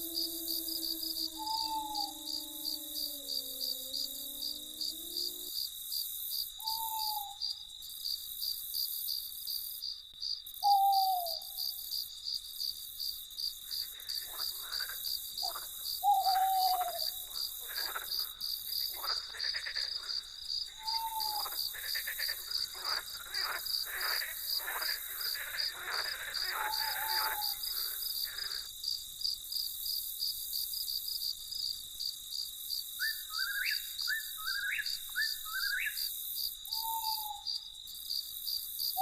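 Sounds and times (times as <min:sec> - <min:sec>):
short falling hoot: 0:00.0 - 0:05.5
frogs croaking: 0:00.0 - 0:05.8, 0:13.4 - 0:29.0, 0:32.8 - 0:37.8
crickets chirping: 0:00.0 - 0:39.0.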